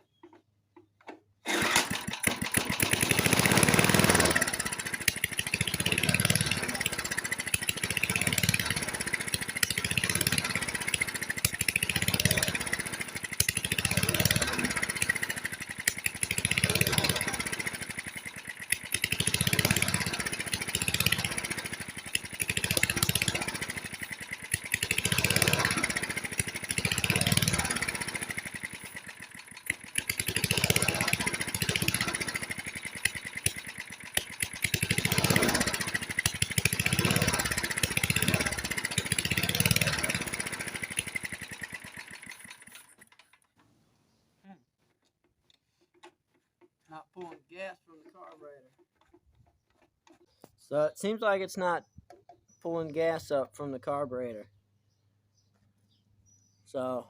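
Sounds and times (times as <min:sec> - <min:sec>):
lawnmower engine surging: 0:01.0 - 0:43.6.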